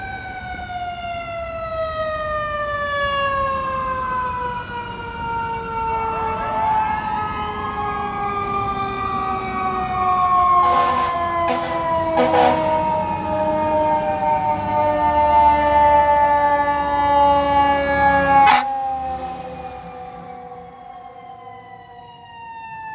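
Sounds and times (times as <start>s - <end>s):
electronic siren sweeping: 8.4s - 22.9s
mechanical siren winding down: 12.9s - 22.9s
short horn blasts: 18.3s - 18.7s.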